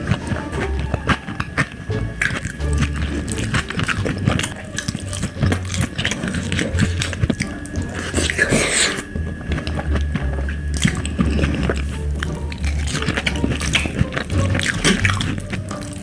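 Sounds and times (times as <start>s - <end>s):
chewing and biting food: 0.0s - 16.0s.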